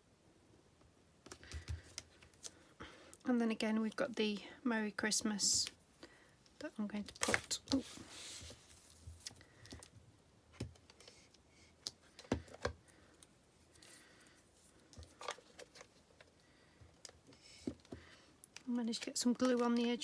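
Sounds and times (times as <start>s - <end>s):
faint clicks and taps: 1.2s - 3.2s, 8.9s - 13.3s.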